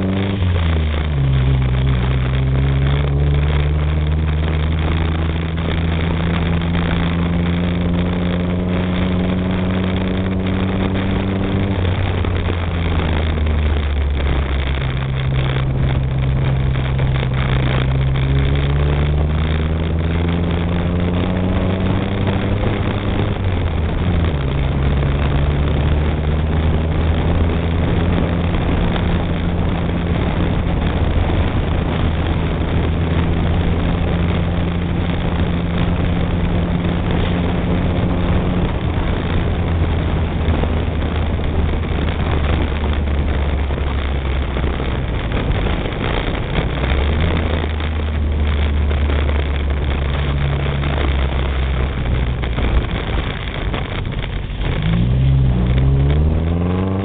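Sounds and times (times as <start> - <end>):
car engine pulling: 0.0 - 57.0
wind and tyre noise: 0.0 - 57.0.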